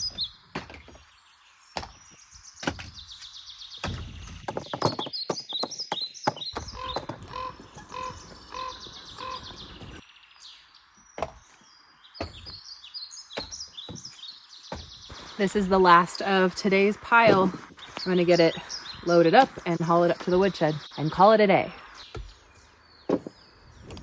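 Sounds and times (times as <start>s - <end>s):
small birds chirping: 0.0s - 24.0s
firewood being chopped: 3.8s - 7.3s, 13.3s - 15.3s, 23.1s - 23.4s.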